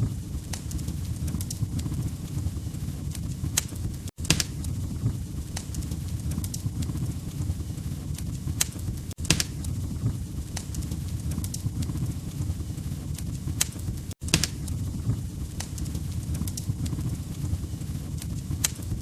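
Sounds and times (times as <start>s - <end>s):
fireplace fire crackling: 0.0s - 19.0s.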